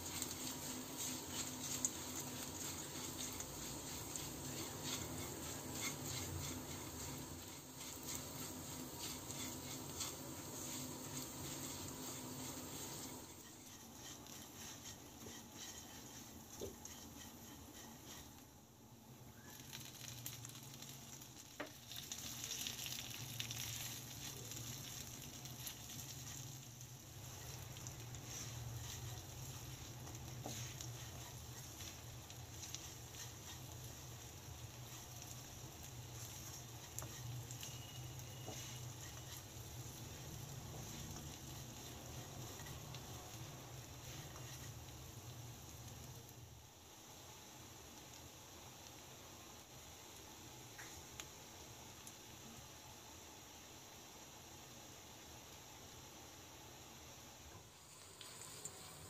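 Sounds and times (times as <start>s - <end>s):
spatula stirring in pan: 0.0s - 18.9s, 19.6s - 48.8s
frying sizzle: 0.0s - 59.0s.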